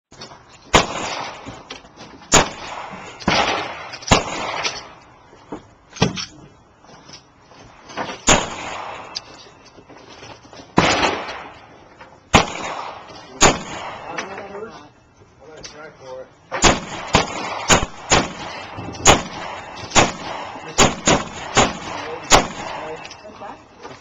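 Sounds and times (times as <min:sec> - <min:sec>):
pistol shots with echo: 0:00.7 - 0:01.6, 0:02.3 - 0:05.0, 0:08.2 - 0:09.2, 0:10.8 - 0:11.7, 0:12.3 - 0:14.4, 0:16.5 - 0:23.2.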